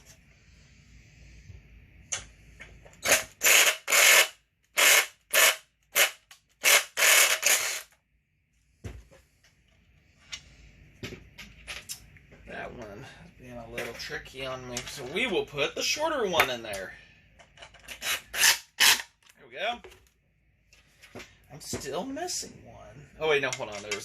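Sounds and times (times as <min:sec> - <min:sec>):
power tool driving screws clicking: 0:03.0 - 0:08.0.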